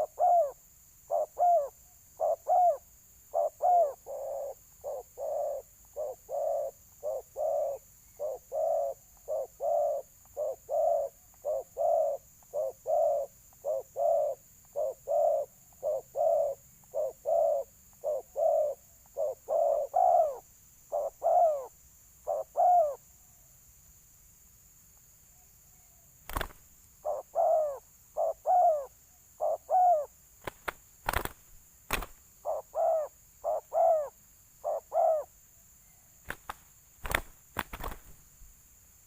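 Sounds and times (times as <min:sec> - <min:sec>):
dove cooing: 0:00.0 - 0:23.0, 0:26.3 - 0:30.1, 0:31.1 - 0:35.3.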